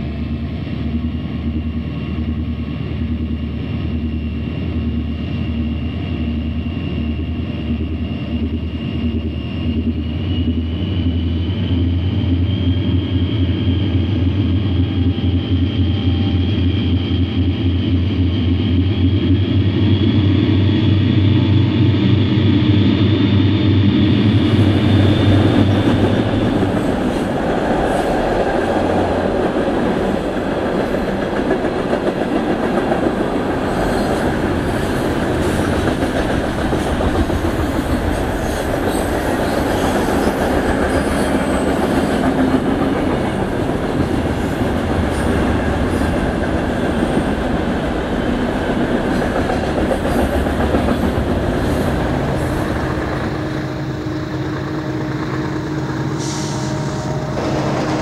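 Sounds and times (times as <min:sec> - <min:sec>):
high engine whine: 0:00.0 - 0:32.4, 0:33.1 - 0:58.0
diesel locomotive engine drone: 0:00.0 - 0:58.0
freight cars rumbling past: 0:19.3 - 0:58.0.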